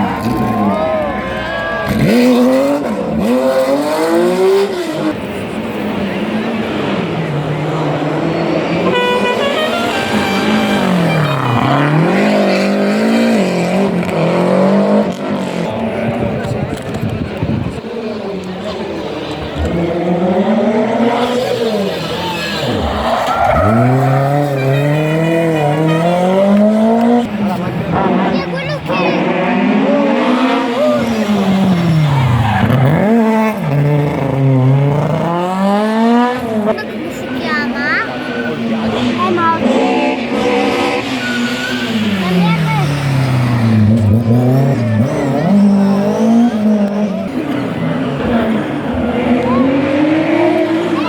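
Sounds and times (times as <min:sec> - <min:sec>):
rally car engine revving: 0:00.0 - 0:51.0
tyres squealing: 0:40.4 - 0:47.2.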